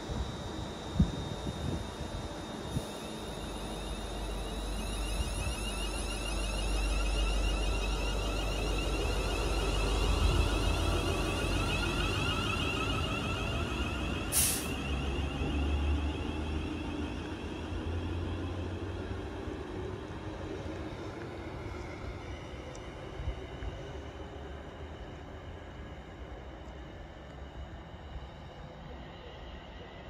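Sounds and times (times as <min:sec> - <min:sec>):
train low rumble: 0:00.0 - 0:30.0
short sharp hiss: 0:14.3 - 0:14.8.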